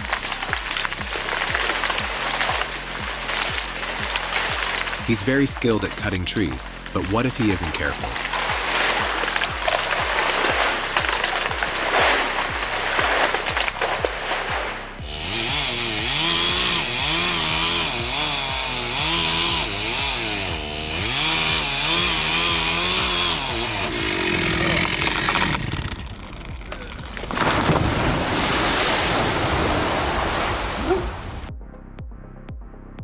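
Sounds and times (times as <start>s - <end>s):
chainsaw engine revving: 0.0s - 14.4s, 15.0s - 31.3s.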